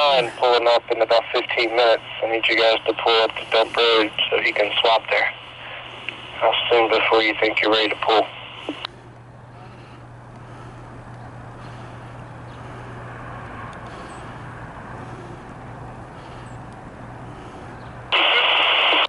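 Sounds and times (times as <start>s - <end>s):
two-way radio static burst: 0.0s - 8.9s, 18.1s - 19.0s
vehicle engine hum: 0.0s - 18.4s.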